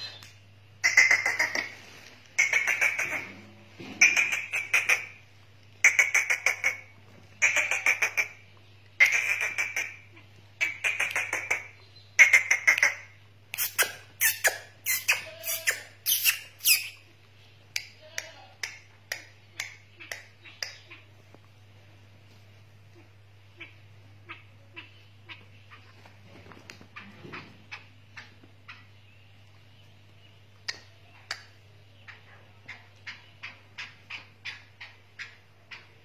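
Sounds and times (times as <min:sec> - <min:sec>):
francolin harsh rattling calls: 0:02.4 - 0:03.3, 0:04.0 - 0:05.2, 0:05.8 - 0:08.4, 0:09.0 - 0:17.0.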